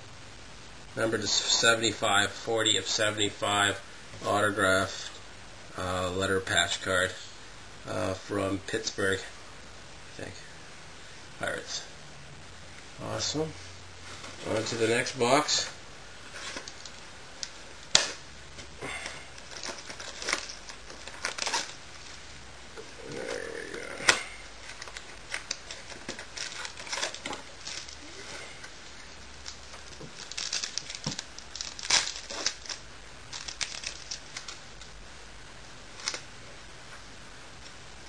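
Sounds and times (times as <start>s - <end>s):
cards and cardboard rustling: 14.0s - 22.2s, 22.8s - 35.0s
wrappers crinkling and tearing: 14.1s - 22.2s, 23.0s - 35.0s, 35.9s - 36.3s.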